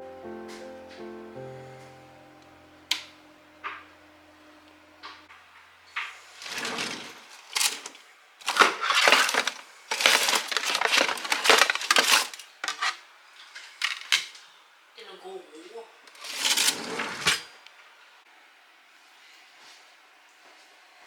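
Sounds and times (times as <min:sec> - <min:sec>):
household items crinkling and clattering: 0:05.9 - 0:14.5, 0:16.1 - 0:17.5.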